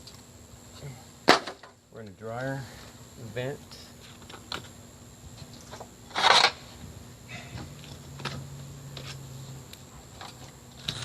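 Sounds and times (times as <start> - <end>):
loud scraping rustle: 5.4 - 6.9.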